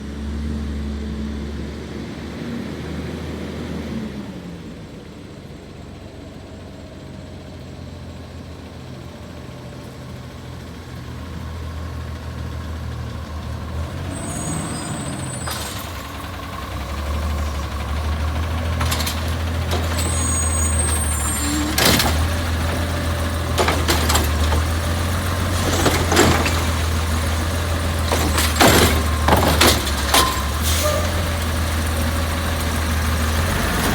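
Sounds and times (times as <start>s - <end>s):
truck engine running: 4.8s - 33.9s
air brakes squealing: 14.0s - 16.5s, 18.8s - 22.5s, 28.1s - 31.5s
metal clanks and bangs: 14.6s - 31.6s.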